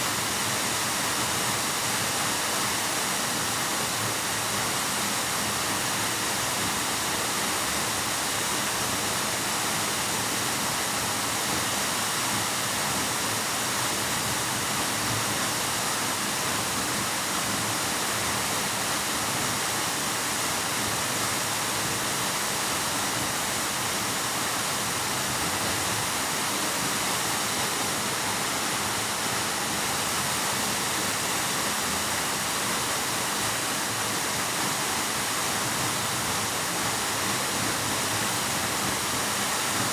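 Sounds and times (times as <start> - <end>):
waterfall rushing: 12.2 - 39.9.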